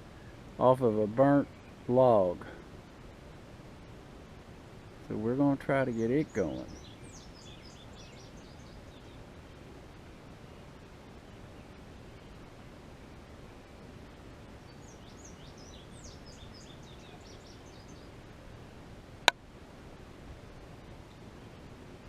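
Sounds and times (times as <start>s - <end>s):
bird chirping: 5.6s - 9.3s, 14.6s - 18.6s.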